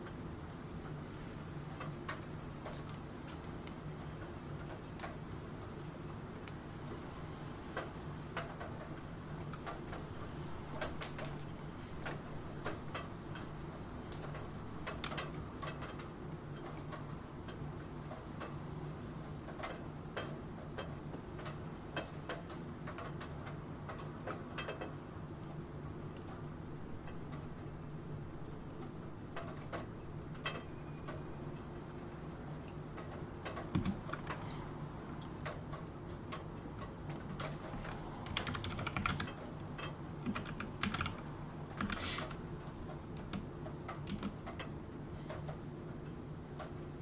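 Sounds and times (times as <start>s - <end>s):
rain: 0.0s - 47.0s
keyboard typing: 33.4s - 34.5s, 37.1s - 44.7s.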